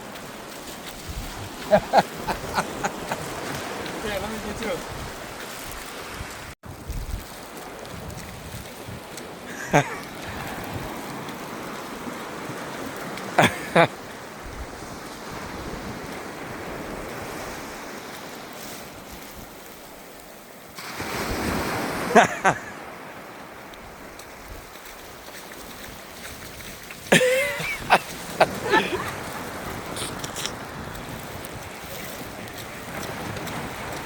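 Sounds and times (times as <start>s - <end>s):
ocean surf washing: 0.0s - 6.6s, 7.3s - 34.0s
wind buffeting microphone: 0.9s - 9.2s, 27.7s - 34.0s.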